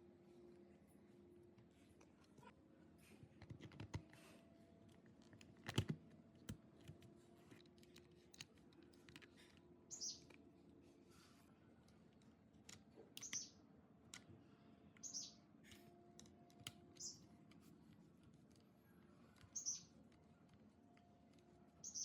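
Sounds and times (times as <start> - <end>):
small bird chirping: 9.9 - 10.3, 13.2 - 13.6, 15.0 - 15.4, 17.0 - 17.3, 19.4 - 20.0.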